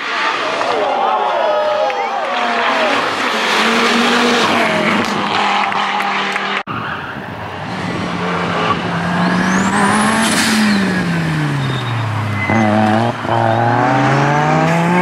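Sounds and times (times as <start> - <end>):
rally car engine revving: 2.4 - 6.6, 7.5 - 15.0.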